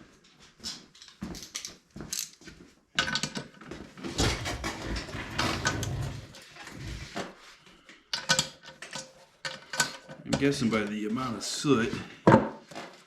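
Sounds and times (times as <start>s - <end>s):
tools and metal parts clinking: 0.9s - 2.4s, 8.1s - 10.3s.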